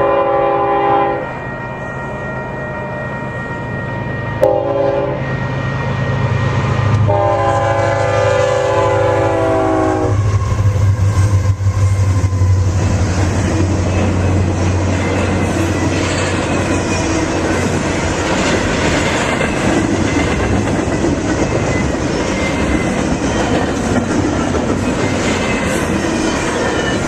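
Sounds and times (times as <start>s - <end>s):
locomotive air horn blasts: 0.0s - 1.3s, 4.4s - 5.3s, 7.0s - 10.4s
train wheel and rail noise: 0.0s - 27.0s.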